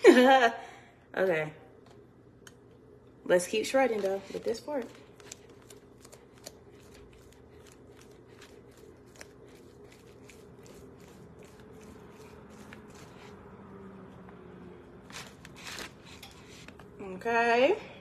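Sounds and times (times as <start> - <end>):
fork scraping shredding chicken: 4.0 - 13.5, 15.0 - 16.7.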